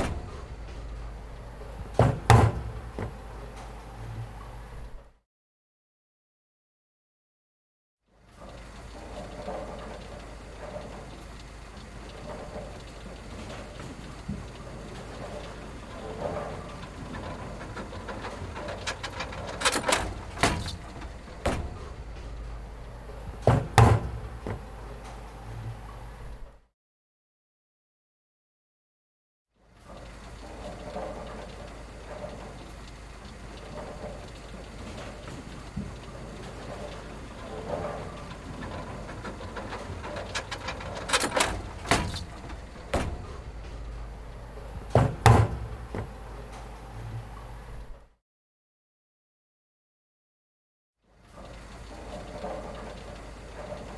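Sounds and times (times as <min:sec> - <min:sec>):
sharp knocks and bangs: 0:00.0 - 0:03.6, 0:18.4 - 0:25.1, 0:39.5 - 0:46.6
low background hum: 0:00.0 - 0:05.0, 0:08.5 - 0:26.5, 0:30.0 - 0:48.0.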